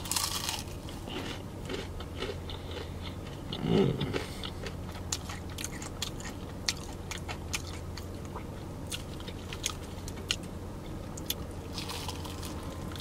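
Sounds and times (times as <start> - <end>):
crunching fried chicken: 0.0 - 13.0.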